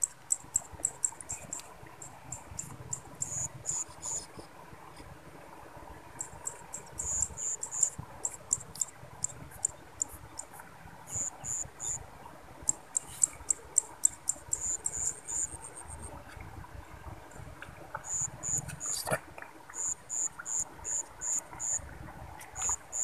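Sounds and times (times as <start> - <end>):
crickets chirping: 0.0 - 4.5, 6.2 - 10.5, 11.1 - 12.0, 12.6 - 16.2, 18.0 - 19.1, 19.7 - 21.8, 22.6 - 23.0.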